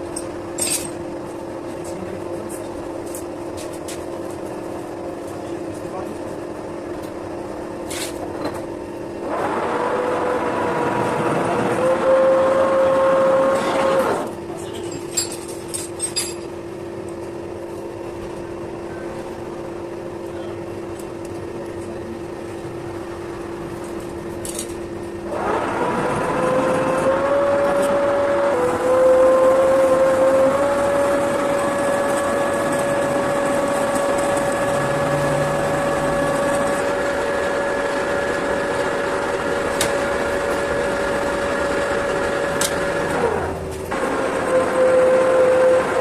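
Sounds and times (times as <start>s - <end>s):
lathe cutting noise and whine: 9.2s - 14.4s, 25.1s - 46.0s
metal lathe humming: 25.2s - 46.0s.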